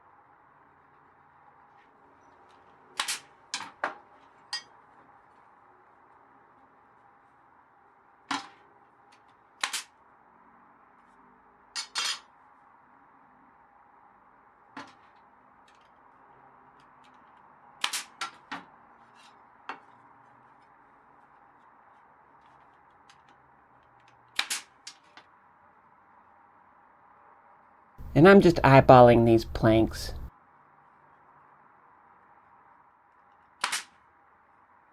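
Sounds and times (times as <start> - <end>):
nail gun firing into wood: 24.4 - 24.7, 33.6 - 33.9.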